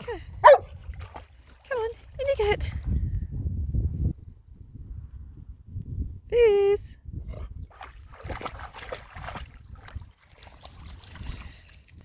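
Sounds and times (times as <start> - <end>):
water splashing around a boat: 0.0 - 2.6, 7.6 - 12.0
wind rumble on microphone: 0.0 - 12.0.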